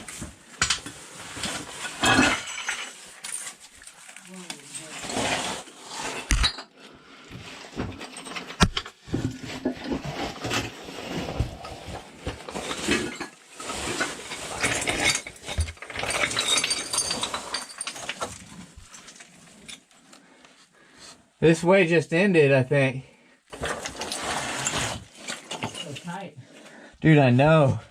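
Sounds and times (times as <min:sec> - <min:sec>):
scraping against rock: 0:23.6 - 0:26.2.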